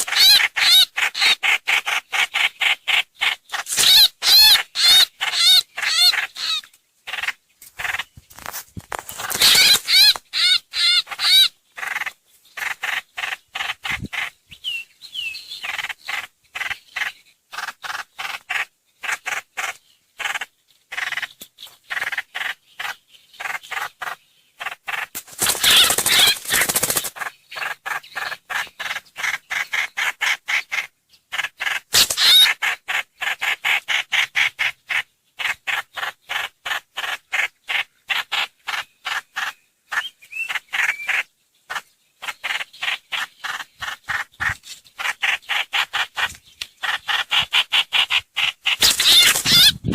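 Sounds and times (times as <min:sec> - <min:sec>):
harsh noisy bird calls: 0:00.0 - 0:49.9
bird short sharp calls: 0:09.2 - 0:21.3, 0:24.6 - 0:36.4, 0:38.7 - 0:49.9.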